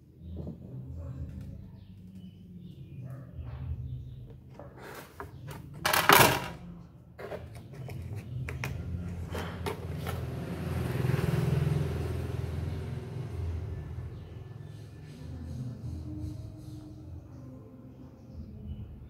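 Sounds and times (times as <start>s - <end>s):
parts rattling: 4.6s - 8.4s
clatter of tools and parts: 5.0s - 6.6s.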